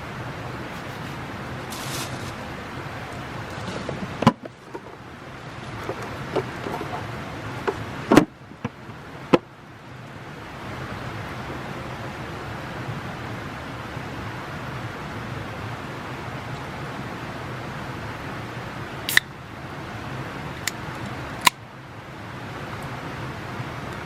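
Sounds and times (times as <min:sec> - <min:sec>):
campfire burning with a hiss: 0:00.1 - 0:23.9
fire popping and knocking: 0:03.4 - 0:08.9.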